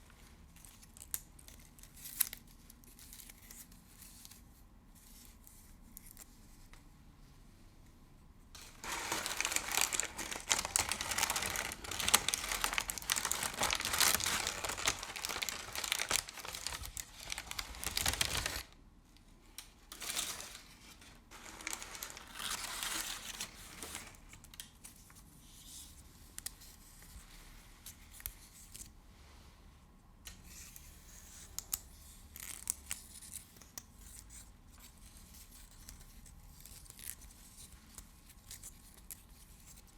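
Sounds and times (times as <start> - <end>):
crinkly material crumpled by hand: 8.5 - 29.5, 31.1 - 39.9.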